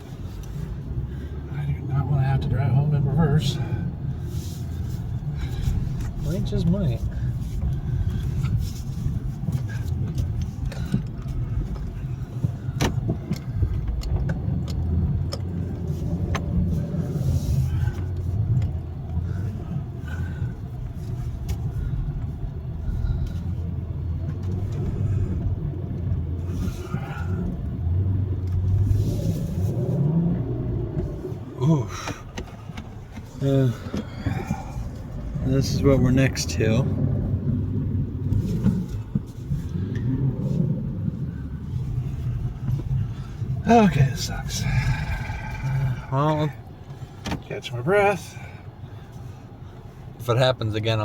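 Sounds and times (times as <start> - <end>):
engine running under load: 2.4 - 50.2
knocks and scrapes: 38.2 - 43.4.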